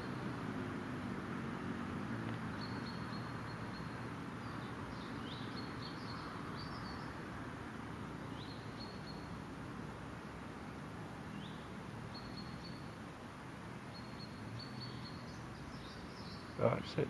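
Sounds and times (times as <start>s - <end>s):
songbird chirping: 2.2s - 7.3s, 8.2s - 9.4s, 11.2s - 17.0s.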